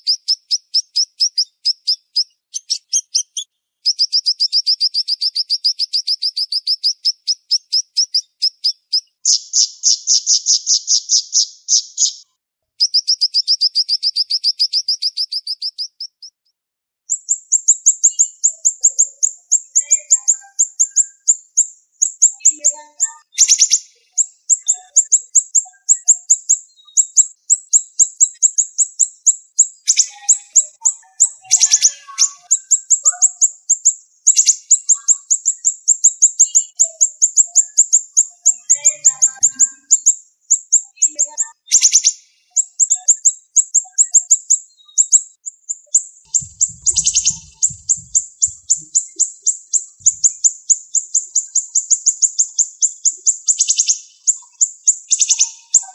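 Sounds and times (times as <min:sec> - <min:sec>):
songbird calling: 0:00.0 - 0:16.4, 0:17.1 - 0:55.9.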